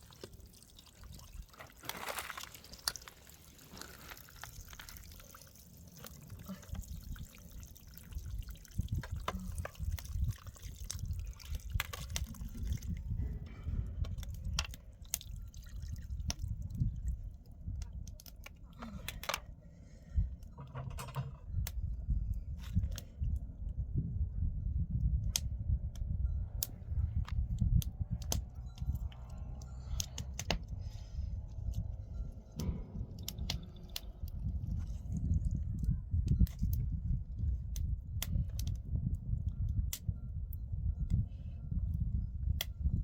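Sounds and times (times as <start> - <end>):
water splashing and dripping: 0.0 - 13.2, 14.0 - 18.8, 32.6 - 36.8.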